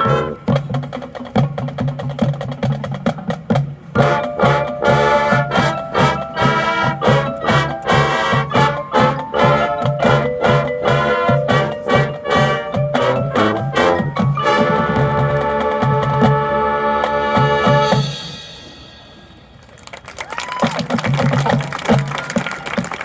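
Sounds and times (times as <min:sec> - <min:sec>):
brass section playing: 0:00.0 - 0:00.7, 0:03.9 - 0:18.6
marching drums beating: 0:00.0 - 0:18.3, 0:20.4 - 0:23.0.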